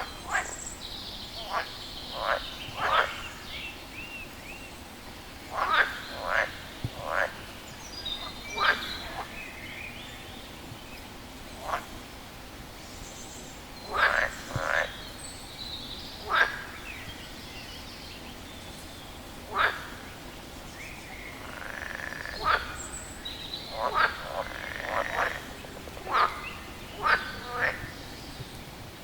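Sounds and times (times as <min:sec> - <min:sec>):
frog croaking: 0:01.4 - 0:03.3, 0:05.5 - 0:07.4, 0:08.2 - 0:09.4, 0:11.6 - 0:11.9, 0:13.9 - 0:15.0, 0:16.2 - 0:16.8, 0:19.5 - 0:20.1, 0:21.3 - 0:22.9, 0:23.7 - 0:28.0.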